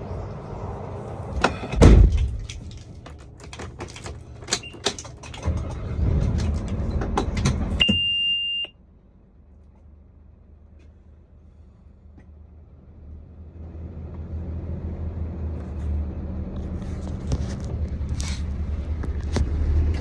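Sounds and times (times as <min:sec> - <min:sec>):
vehicle rumble: 0:00.0 - 0:20.0
loud thump: 0:01.4 - 0:02.7
clicks knocks and rattles: 0:01.4 - 0:07.8
high beep: 0:07.8 - 0:08.7.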